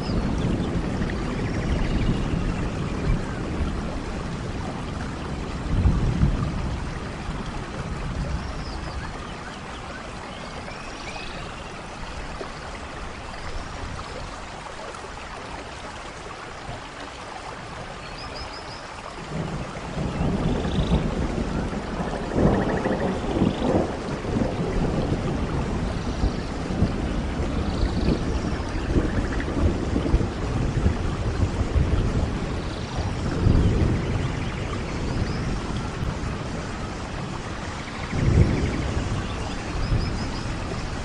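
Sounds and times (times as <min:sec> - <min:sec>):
distant thunder rumble: 0:00.0 - 0:09.7, 0:19.1 - 0:41.0
steady rainfall: 0:00.0 - 0:41.0.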